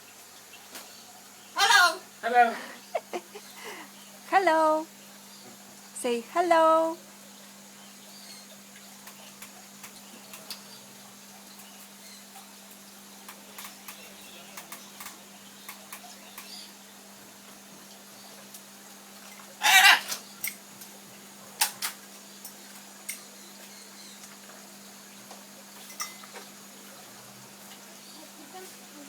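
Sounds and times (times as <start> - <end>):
faint steady hum: 0.0 - 29.0
bird squawking: 1.6 - 2.1, 19.6 - 20.2.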